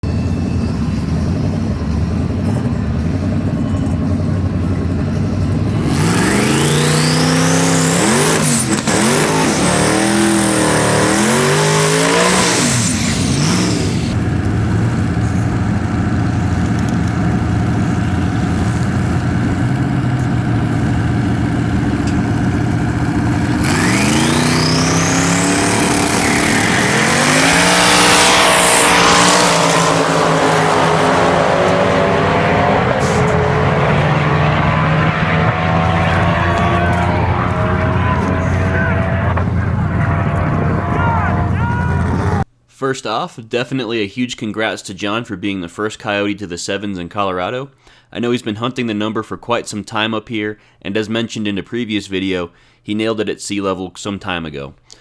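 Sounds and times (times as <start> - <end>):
car engine idling and revving: 0.0 - 42.5
turbo whine rising in pitch: 5.8 - 42.4.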